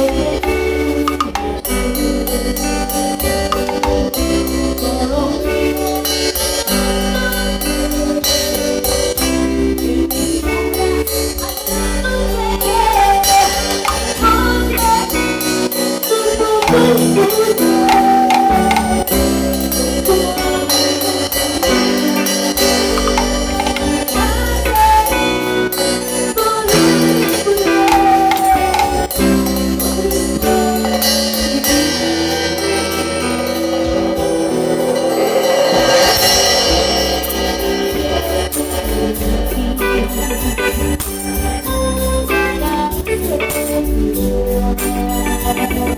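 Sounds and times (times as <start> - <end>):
bass line: 0.0 - 45.9
drums and cymbals: 0.0 - 45.9
keyboard chords: 0.0 - 45.9
live band playing cumbia: 0.0 - 45.9.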